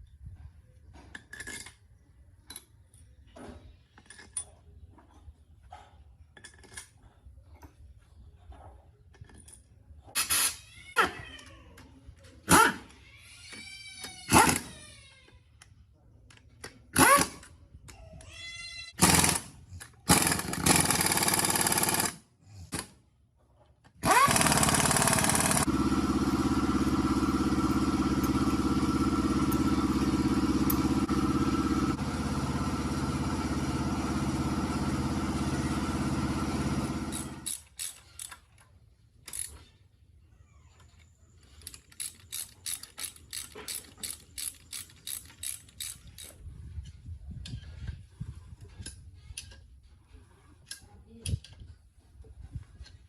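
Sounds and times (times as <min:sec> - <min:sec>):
engine running: 0:24.0 - 0:37.6.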